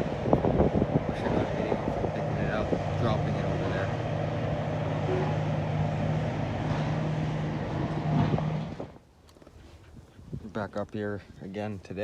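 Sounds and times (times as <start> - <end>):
vehicle engine drone: 0.0 - 9.0
road noise inside vehicle: 0.0 - 9.4.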